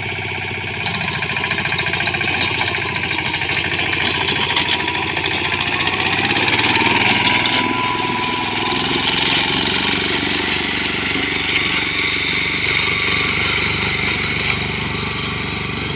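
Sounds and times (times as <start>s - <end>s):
small engine chugging: 0.0s - 15.9s
metallic machine clatter: 0.8s - 15.9s.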